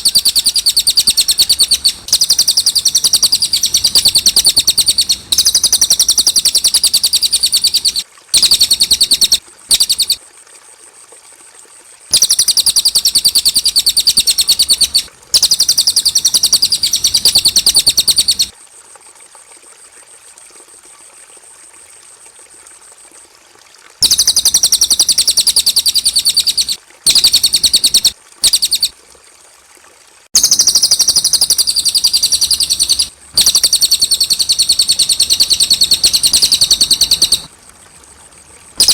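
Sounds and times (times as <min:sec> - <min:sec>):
songbird singing rapid high notes: 0:00.0 - 0:10.2, 0:12.1 - 0:18.5, 0:24.0 - 0:28.9, 0:30.4 - 0:37.5.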